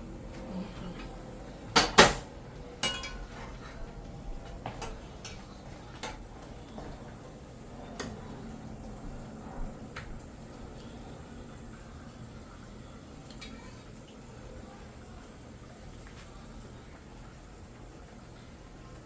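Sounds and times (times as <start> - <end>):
ringing metal clank: 2.8 - 3.3
pots knocking: 2.8 - 3.6.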